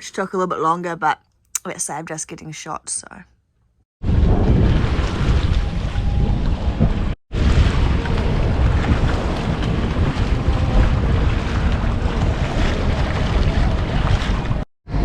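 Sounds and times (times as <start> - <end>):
wind buffeting microphone: 4.0 - 15.0
sea water rushing around yacht: 4.2 - 15.0.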